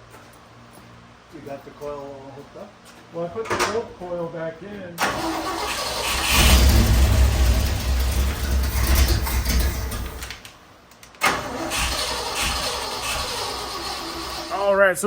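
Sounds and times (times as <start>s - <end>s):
engine rumbling: 3.2s - 15.0s.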